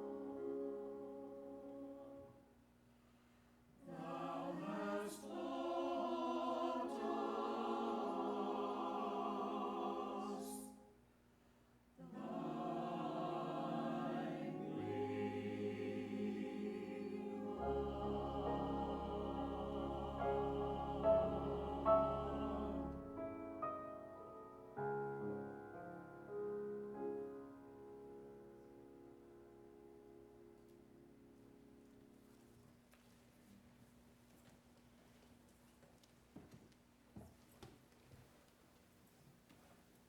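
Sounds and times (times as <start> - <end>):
church choir singing: 0.0 - 2.3, 3.8 - 11.0, 12.0 - 23.7
keyboard accompaniment: 0.0 - 2.4, 12.2 - 32.3.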